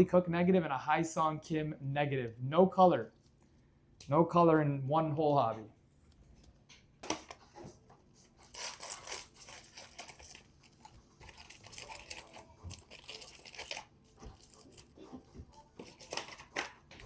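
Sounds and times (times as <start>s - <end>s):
packaging torn and crinkled: 8.4s - 13.9s.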